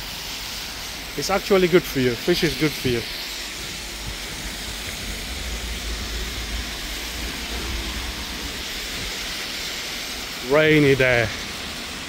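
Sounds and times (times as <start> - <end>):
rain hiss: 0.0 - 12.0
low rumble: 2.8 - 11.9.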